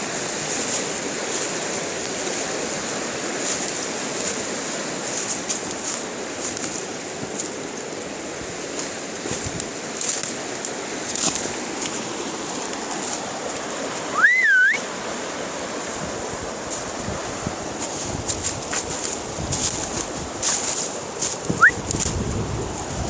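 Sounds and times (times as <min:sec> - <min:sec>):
river water rushing: 0:00.0 - 0:23.0
whistle-like call: 0:14.1 - 0:14.9, 0:21.6 - 0:21.8.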